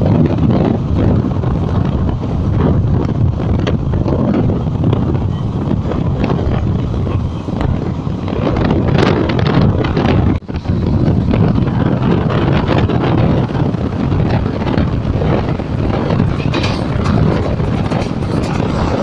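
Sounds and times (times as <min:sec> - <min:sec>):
train coaches rumbling: 0:00.0 - 0:19.0
wind buffeting microphone: 0:00.0 - 0:19.0.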